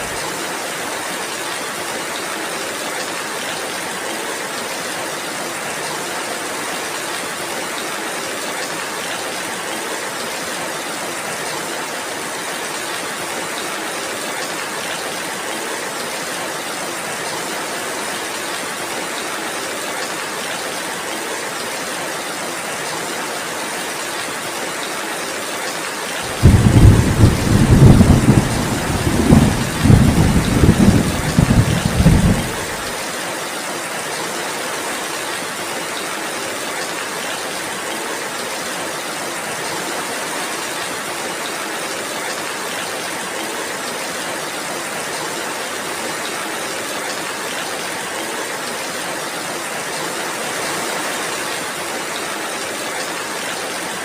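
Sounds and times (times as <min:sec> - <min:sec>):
heavy rain hissing: 0:26.2 - 0:33.4
thunder rumbling: 0:26.3 - 0:32.8.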